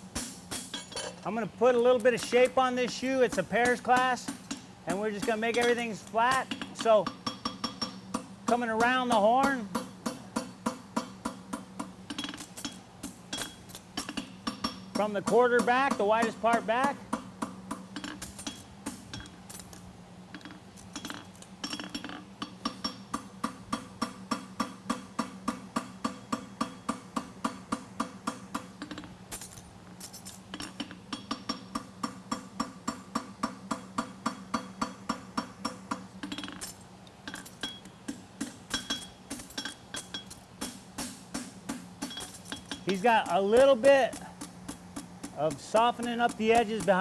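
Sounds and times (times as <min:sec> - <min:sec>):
hammer striking metal on anvil: 0:00.1 - 0:01.2, 0:01.8 - 0:19.4, 0:20.4 - 0:29.1, 0:30.5 - 0:47.0
anvil ringing: 0:02.1 - 0:19.2, 0:38.7 - 0:44.3.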